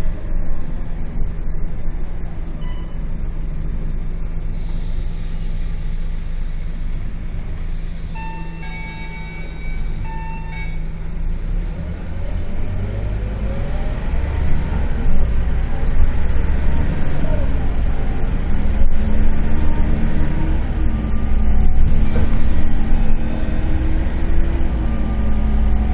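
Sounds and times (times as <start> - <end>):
short beeps: 0.0 - 3.0, 7.7 - 10.9
bus diesel engine revving: 0.0 - 25.9.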